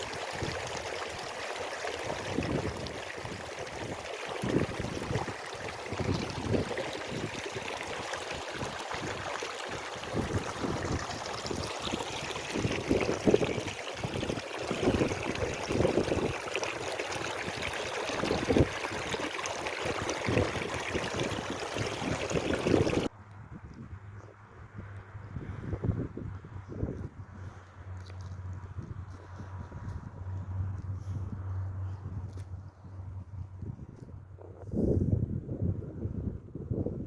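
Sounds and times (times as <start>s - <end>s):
running water rushing: 0.0s - 23.1s
wind buffeting on microphone: 2.0s - 27.9s, 28.5s - 37.0s.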